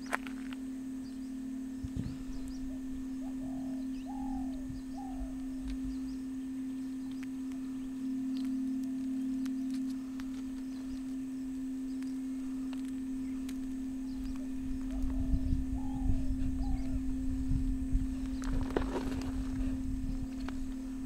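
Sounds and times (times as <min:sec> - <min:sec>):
faint high chirps and ticks: 0:00.0 - 0:18.8
steady low hum: 0:00.0 - 0:21.0
arching bird calls: 0:01.0 - 0:17.1.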